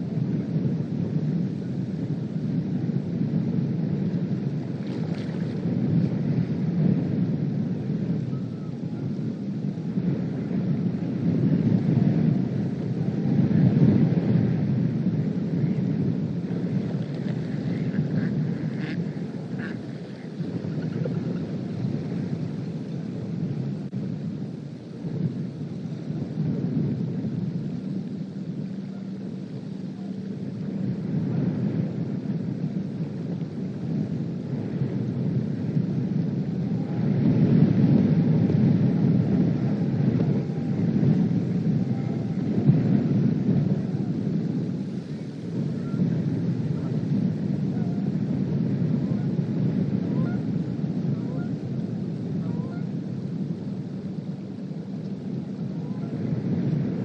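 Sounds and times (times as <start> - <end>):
faint steady hum: 0.0 - 57.0
wind buffeting microphone: 0.0 - 57.0.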